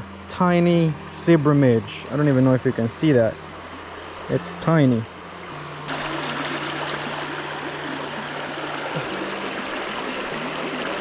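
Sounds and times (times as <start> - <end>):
creek water rushing over rocks: 2.9 - 11.0.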